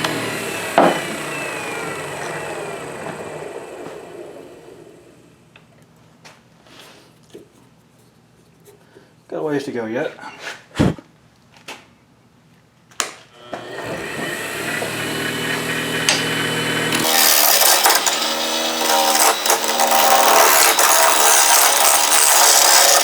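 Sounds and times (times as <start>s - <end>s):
chisel scraping spinning wood: 0.0s - 4.1s, 13.6s - 23.0s
lathe motor humming: 0.0s - 5.2s, 13.5s - 23.0s.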